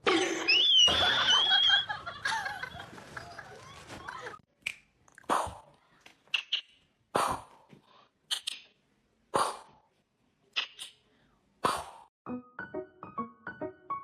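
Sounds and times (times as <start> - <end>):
piano music: 12.2 - 14.0.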